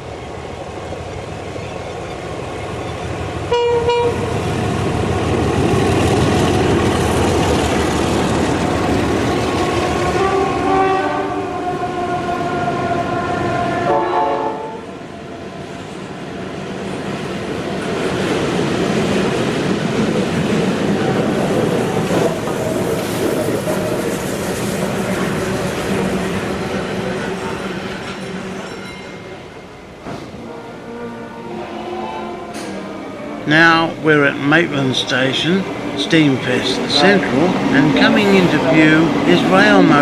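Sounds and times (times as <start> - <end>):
train wheels rumbling: 0.0 - 14.0, 15.0 - 40.0
chord-like train horn blast: 3.5 - 4.3, 10.0 - 15.0, 30.3 - 40.0
train horn toots: 3.5 - 4.3, 10.0 - 15.0, 30.3 - 33.8, 36.6 - 39.6.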